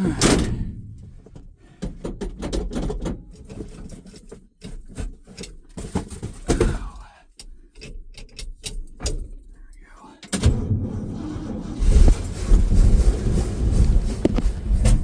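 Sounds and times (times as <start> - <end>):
clicks knocks and rattles: 1.2 - 6.8, 7.4 - 9.6.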